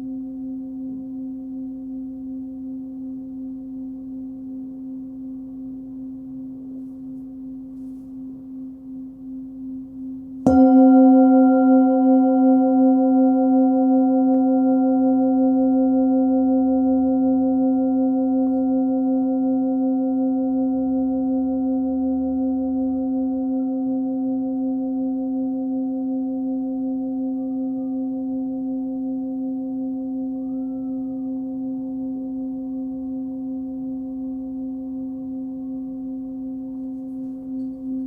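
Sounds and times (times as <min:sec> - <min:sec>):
singing bowl ringing: 0:10.4 - 0:38.0.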